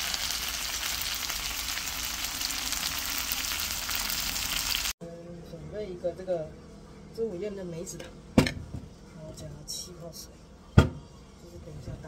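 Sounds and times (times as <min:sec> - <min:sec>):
chicken wings sizzling in a pan: 0:00.0 - 0:05.0.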